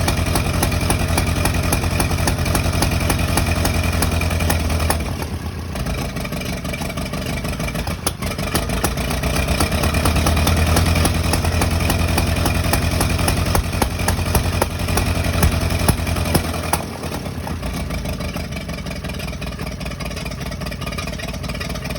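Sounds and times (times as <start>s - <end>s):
sharp engine ticks: 0.0s - 5.3s, 7.8s - 17.1s
engine humming: 0.0s - 21.9s.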